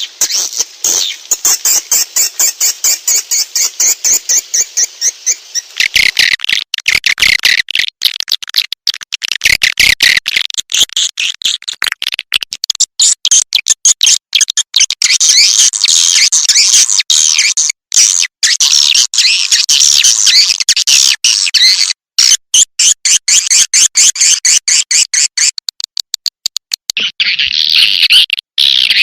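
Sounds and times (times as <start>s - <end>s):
swiftlet chirping and twittering: 0.0s - 8.6s, 12.9s - 25.9s.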